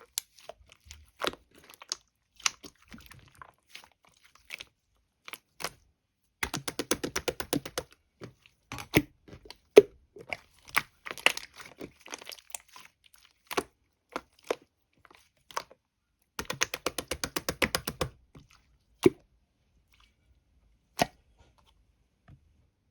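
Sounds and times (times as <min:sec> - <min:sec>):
crunching and chewing: 0:00.0 - 0:04.7, 0:08.4 - 0:15.8.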